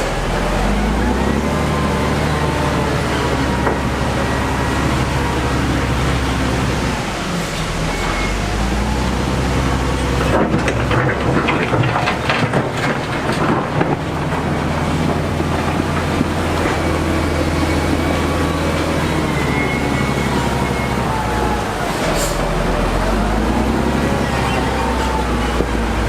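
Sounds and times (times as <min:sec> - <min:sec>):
construction machine engine running: 0:00.0 - 0:26.0
clattering and knocking: 0:10.2 - 0:17.3.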